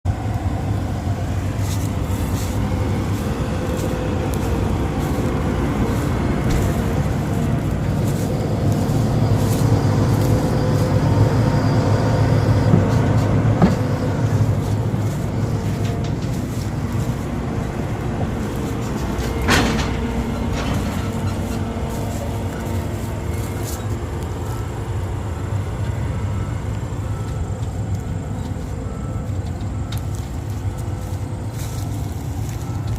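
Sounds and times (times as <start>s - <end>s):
combine diesel engine running: 0.0s - 32.9s.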